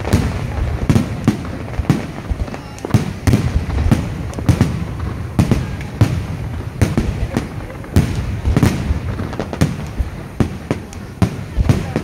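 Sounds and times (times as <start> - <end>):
fireworks bangs with echo: 0.0 - 12.0.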